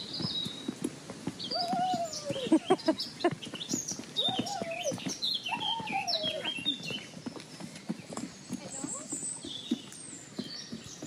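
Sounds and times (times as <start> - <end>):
birds chirping: 0.0 - 11.0
footsteps on concrete steps: 0.0 - 11.0
long rising and falling bird calls: 1.4 - 7.2.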